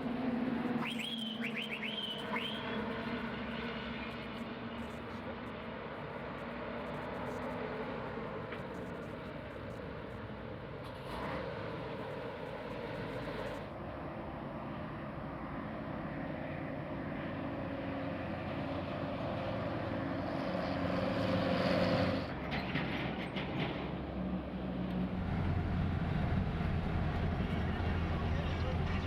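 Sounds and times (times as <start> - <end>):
vehicle engine running: 25.1 - 29.0.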